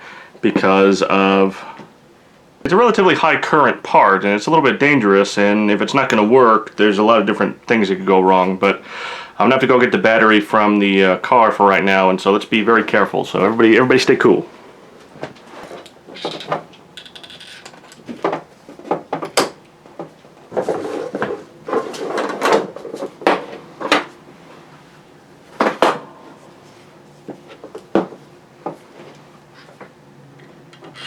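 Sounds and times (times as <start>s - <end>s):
rustling of handled objects: 13.3s - 31.0s
objects knocking and clunking: 15.1s - 24.2s, 25.5s - 31.0s.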